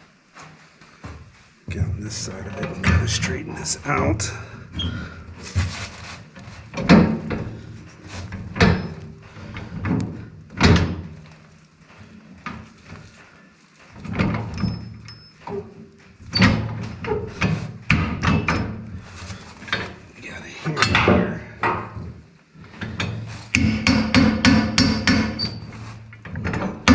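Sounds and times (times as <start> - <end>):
metal knocks and clanks: 6.7 - 7.6, 8.2 - 11.2, 14.0 - 18.8, 20.7 - 26.9.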